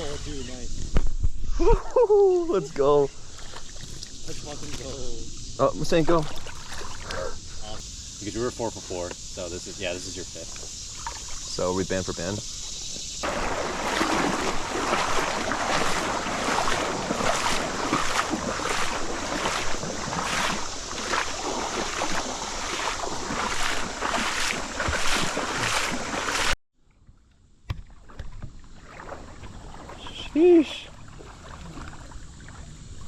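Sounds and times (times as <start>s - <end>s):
rushing creek water: 2.6s - 9.0s, 9.6s - 26.6s.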